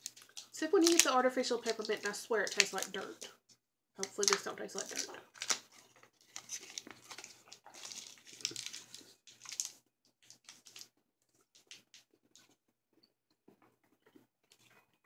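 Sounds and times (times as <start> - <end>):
candy being chewed: 0.0 - 3.4, 4.0 - 15.0
plastic wrapper crinkling: 0.0 - 3.4, 4.0 - 12.6.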